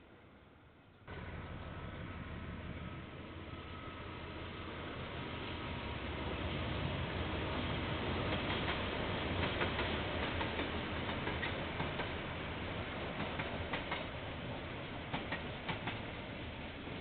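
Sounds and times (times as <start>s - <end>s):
freight train rumble: 0.0s - 17.0s
wheels clicking over rail joints: 8.3s - 12.2s, 13.1s - 14.2s, 15.0s - 16.1s.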